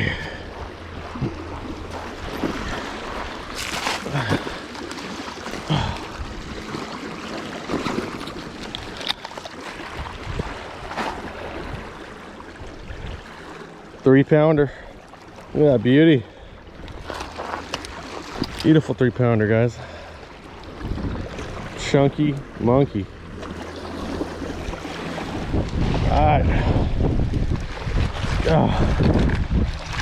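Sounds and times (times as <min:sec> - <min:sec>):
water lapping at shore: 0:00.0 - 0:30.0
wind on microphone: 0:09.9 - 0:10.9, 0:20.8 - 0:21.7, 0:24.6 - 0:30.0.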